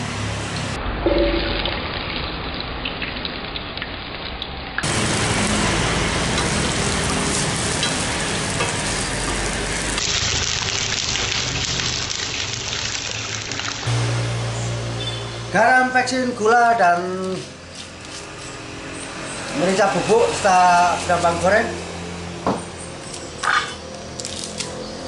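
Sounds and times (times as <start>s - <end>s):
vegetables sizzling in hot oil: 4.8s - 14.2s.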